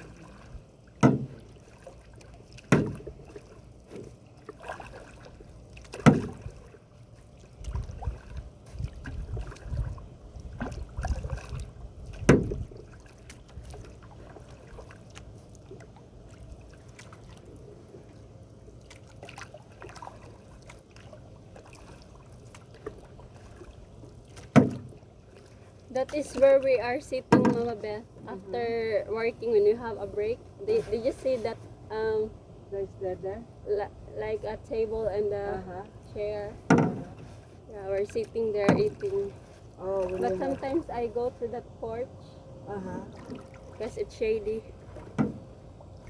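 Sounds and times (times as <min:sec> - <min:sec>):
paddle strokes swishing water: 0:00.0 - 0:32.0, 0:34.3 - 0:41.9, 0:43.0 - 0:46.0
sharp knocks: 0:01.0 - 0:01.4, 0:12.3 - 0:12.6.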